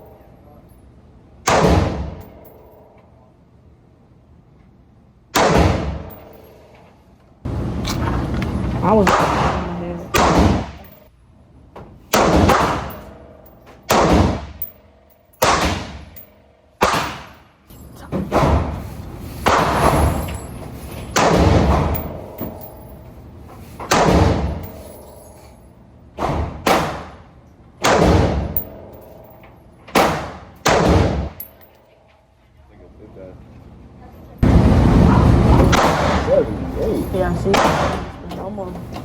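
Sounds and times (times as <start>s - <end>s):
gunshots with echo: 9.0s - 10.8s, 12.1s - 13.2s, 13.9s - 14.6s, 15.4s - 16.1s, 30.0s - 31.3s, 35.6s - 36.4s.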